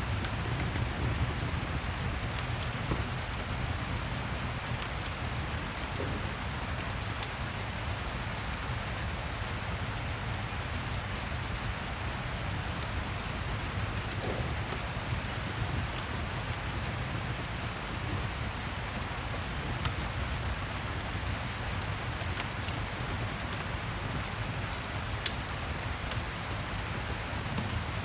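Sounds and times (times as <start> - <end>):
steady rain hiss: 0.0 - 28.0
fireplace crackles: 10.5 - 28.0.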